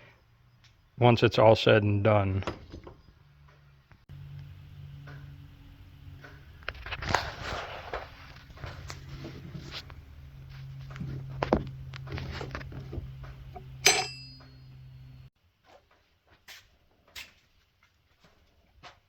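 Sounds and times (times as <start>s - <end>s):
steady low hum: 3.0s - 15.3s
metallic clank: 12.7s - 15.3s
tools clicking and knocking: 13.4s - 14.8s.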